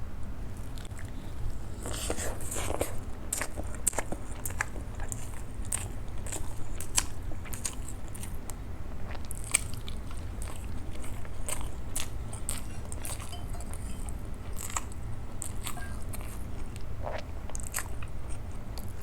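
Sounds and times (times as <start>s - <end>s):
wet chewing: 1.9s - 19.0s
steady low hum: 12.0s - 16.9s.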